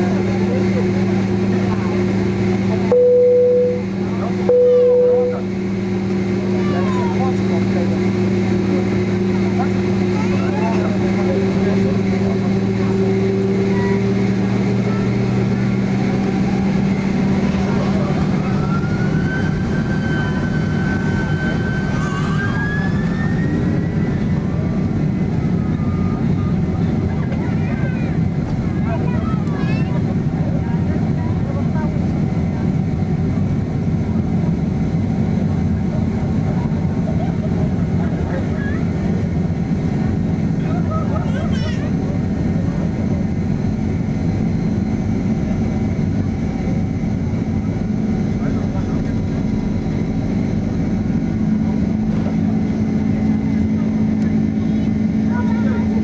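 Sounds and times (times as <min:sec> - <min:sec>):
jet engines spooling up: 0:00.0 - 0:41.1, 0:41.9 - 0:56.0
faint high whines: 0:02.9 - 0:05.8.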